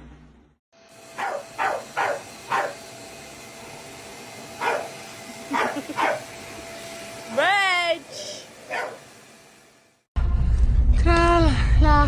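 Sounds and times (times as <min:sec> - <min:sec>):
dog barking: 0:01.2 - 0:02.8, 0:04.6 - 0:06.3, 0:08.7 - 0:09.0.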